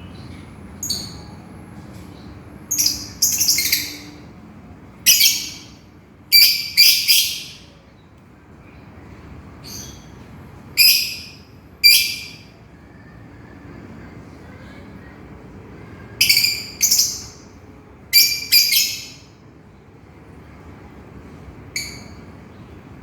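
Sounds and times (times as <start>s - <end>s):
lovebird screeching: 18.2s - 19.2s.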